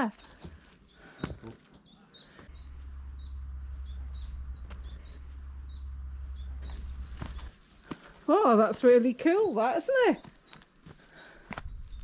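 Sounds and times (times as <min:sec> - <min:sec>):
small bird chirping: 0:00.0 - 0:07.8
low rumble on microphone: 0:02.5 - 0:07.8.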